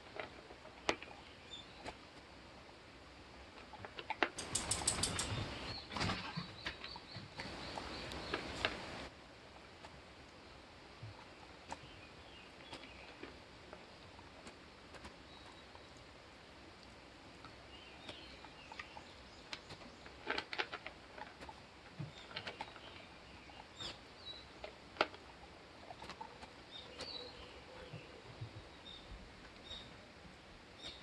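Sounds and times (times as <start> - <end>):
small clicks and rustles: 3.5 - 9.1, 16.8 - 28.7
bird chirps: 4.4 - 8.6, 26.7 - 30.0.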